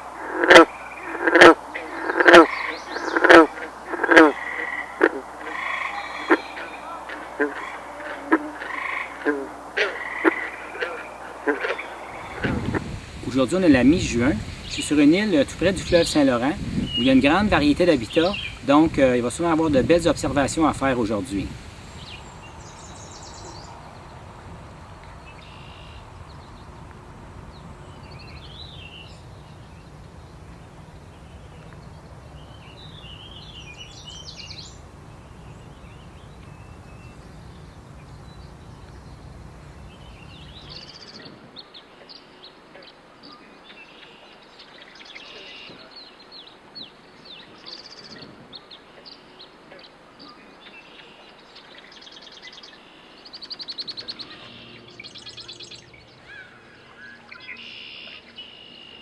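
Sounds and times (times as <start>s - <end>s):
low outdoor noise: 0.0s - 59.0s
birds singing and calling: 1.8s - 9.3s, 10.0s - 59.0s.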